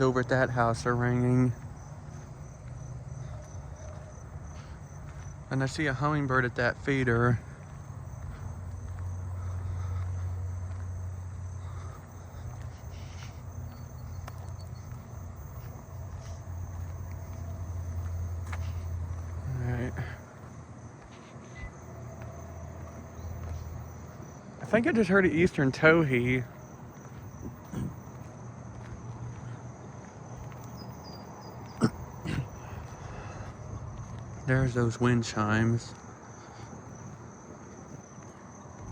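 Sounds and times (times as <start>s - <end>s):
crickets trilling: 0.0s - 38.9s
steady low hum: 0.0s - 38.9s.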